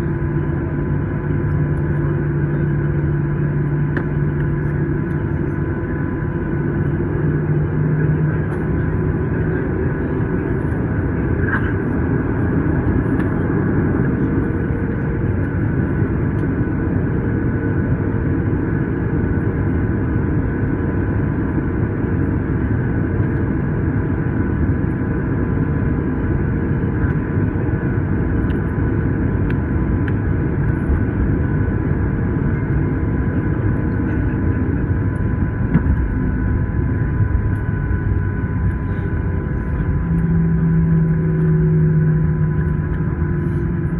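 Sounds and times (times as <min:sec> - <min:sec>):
air conditioning: 0:00.0 - 0:43.9
faint steady whine: 0:00.0 - 0:43.9
low rumble of idling engines: 0:06.9 - 0:16.5, 0:32.2 - 0:43.9.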